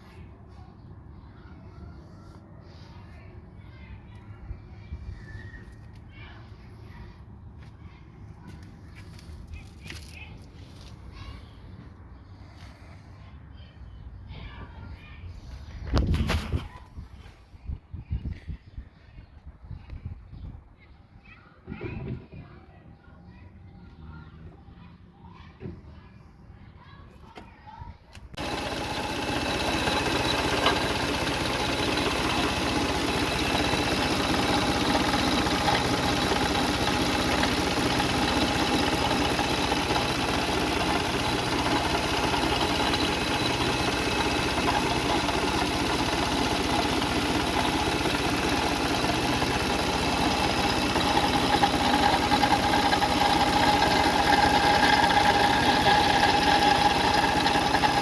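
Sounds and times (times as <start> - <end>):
rattling engine noise: 28.3 - 58.0
car engine idling: 28.4 - 58.0.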